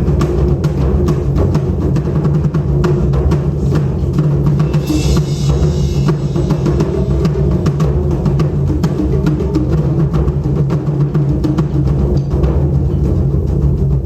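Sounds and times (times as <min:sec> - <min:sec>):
taiko drum ensemble playing: 0:00.0 - 0:14.0
hissy shimmer: 0:04.6 - 0:07.7.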